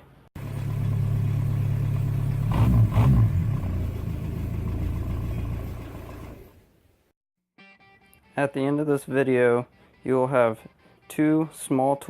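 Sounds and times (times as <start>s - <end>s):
truck engine running: 0.4s - 6.6s.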